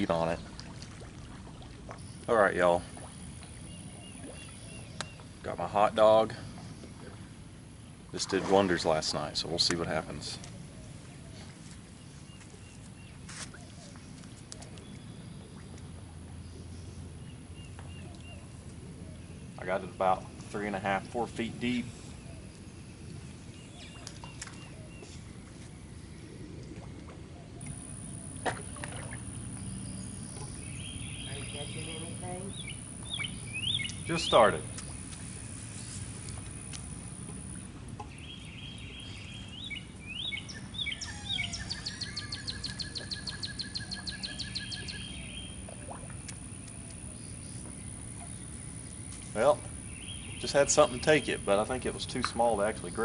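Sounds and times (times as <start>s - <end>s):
outdoor background noise: 0.0s - 53.0s
songbirds singing: 0.0s - 53.0s
low fast bird trill: 40.1s - 45.5s.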